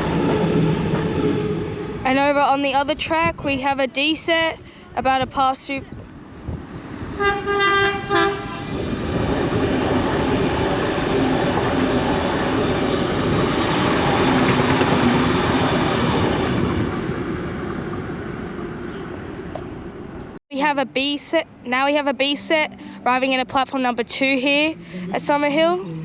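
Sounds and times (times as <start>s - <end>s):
electric train passing: 0.0s - 3.0s, 6.2s - 20.4s
train horn blasts: 7.2s - 8.8s.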